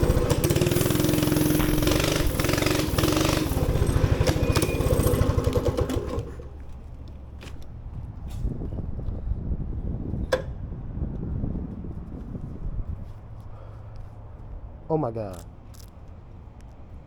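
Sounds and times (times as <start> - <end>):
small gas engine running: 0.0 - 6.9.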